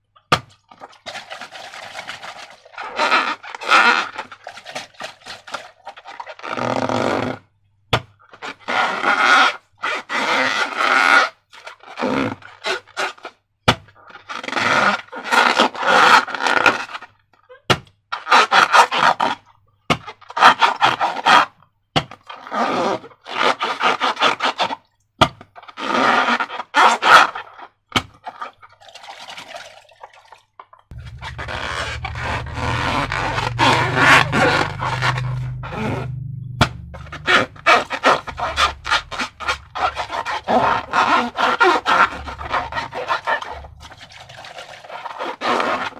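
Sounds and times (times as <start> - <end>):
low rumble: 30.9 - 44.6.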